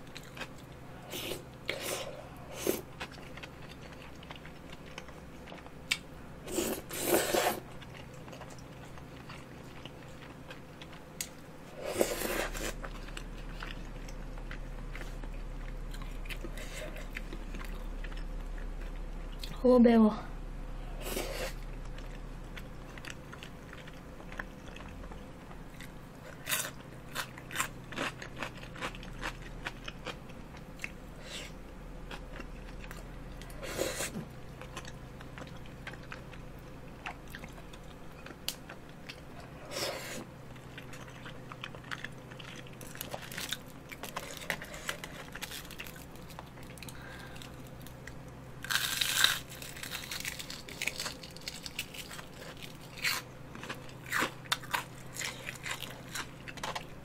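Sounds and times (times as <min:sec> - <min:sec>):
crunchy bite into fried food: 0:48.6 - 0:52.2.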